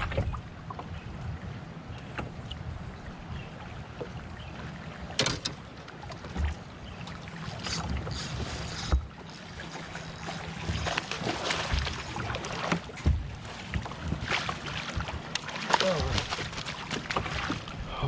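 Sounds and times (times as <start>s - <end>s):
wind rumbling on microphone: 0.0s - 3.6s
water sounds: 0.0s - 18.0s
short knocks and clicks: 5.2s - 6.6s.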